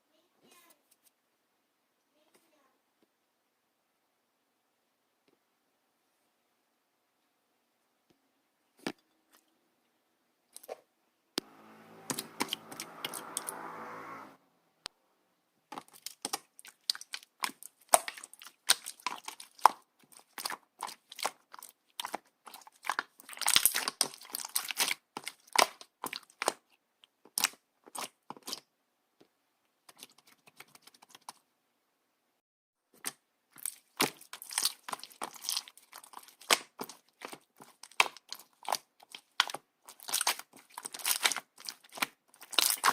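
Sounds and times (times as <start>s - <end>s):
slime squelch: 10.5s - 14.2s, 15.7s - 28.7s, 29.7s - 31.5s, 32.9s - 42.9s.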